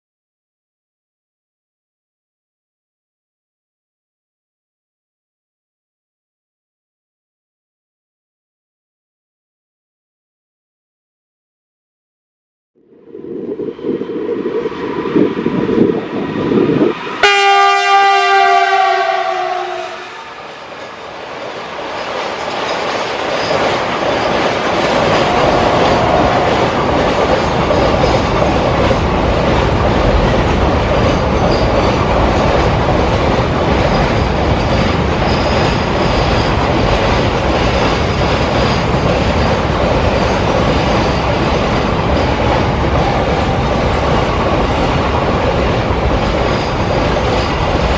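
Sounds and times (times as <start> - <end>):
freight train rumble and wheel clatter: 14.0 - 47.9
locomotive horn: 17.2 - 20.7.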